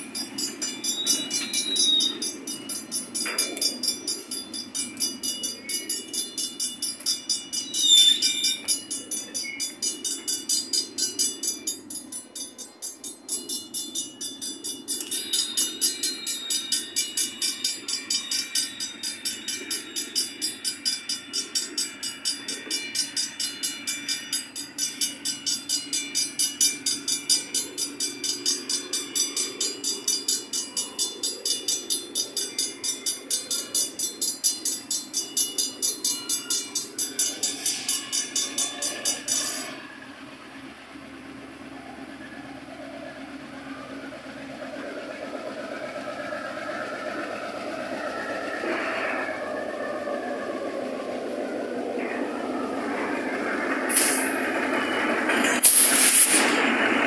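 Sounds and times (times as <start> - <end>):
level-crossing bell ringing: 0.0 - 55.6
freight cars rumbling past: 0.0 - 57.0.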